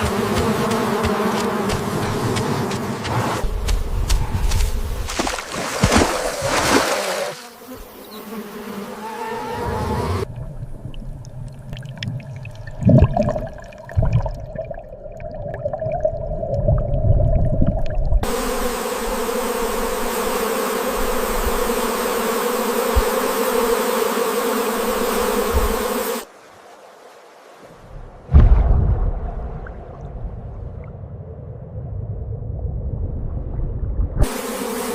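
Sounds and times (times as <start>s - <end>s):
low rumble: 28.0s - 34.2s.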